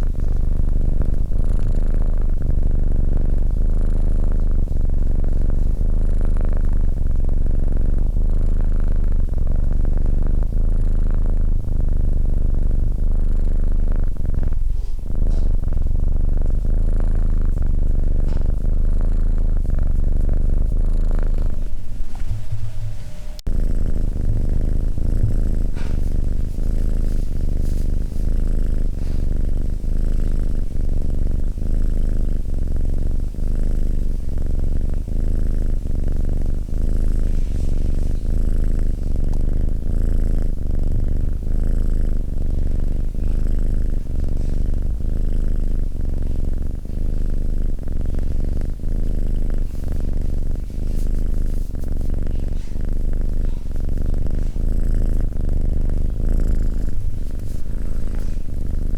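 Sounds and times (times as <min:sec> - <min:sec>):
cat purring: 0:00.0 - 0:58.9.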